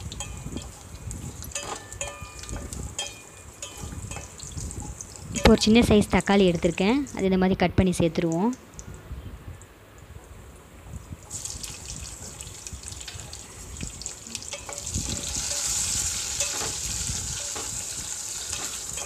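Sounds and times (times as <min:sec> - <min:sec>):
tomato sizzling in hot oil: 0:00.0 - 0:07.2, 0:11.2 - 0:19.0
spatula scraping a pan: 0:14.5 - 0:19.0.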